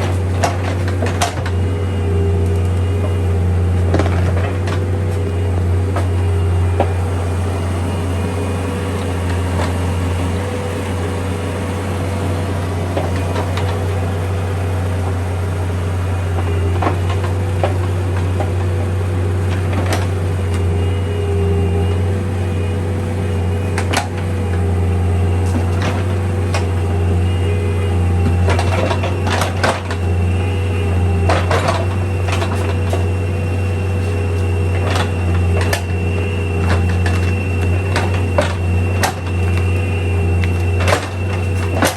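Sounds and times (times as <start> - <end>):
diesel engine droning: 0.0 - 41.9
thin steady whine: 0.0 - 41.9.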